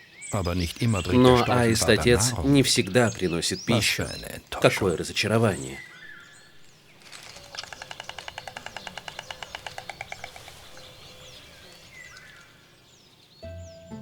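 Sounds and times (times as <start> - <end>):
songbirds chirping: 0.0 - 14.0
stork clattering its bill: 6.9 - 12.7.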